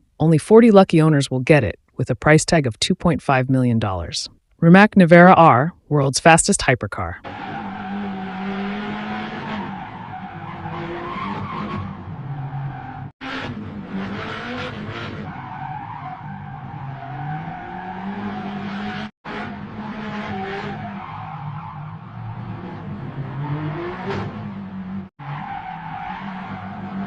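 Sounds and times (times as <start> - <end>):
car driving at speed: 7.2 - 27.0.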